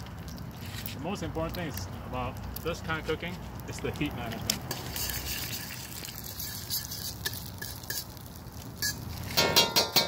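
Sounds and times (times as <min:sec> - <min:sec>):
food sizzling in hot oil: 0:04.0 - 0:10.0
metal spatula stirring: 0:04.6 - 0:10.0
spatula clanking against wok: 0:08.8 - 0:10.0.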